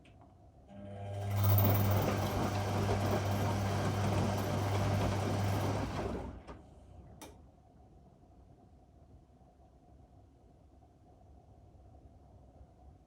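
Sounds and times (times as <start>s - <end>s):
washing machine humming: 0.7s - 6.8s.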